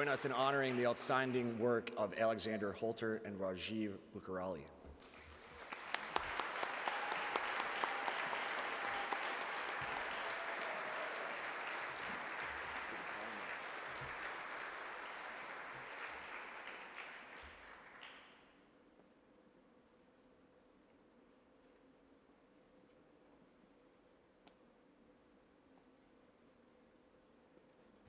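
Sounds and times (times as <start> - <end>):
audience applause: 0.0 - 1.7, 5.0 - 18.3.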